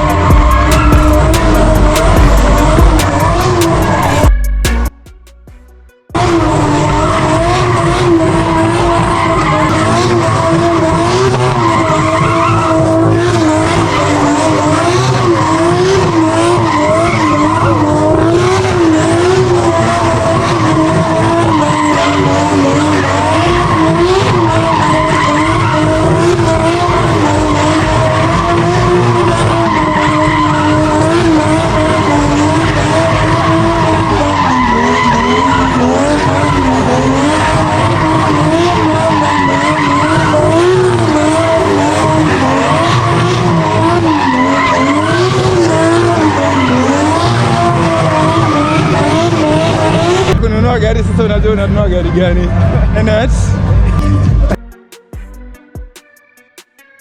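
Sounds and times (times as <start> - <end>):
tyres squealing: 0.0 - 4.4, 6.2 - 50.4
car engine at high revs: 0.0 - 4.9, 6.1 - 54.6.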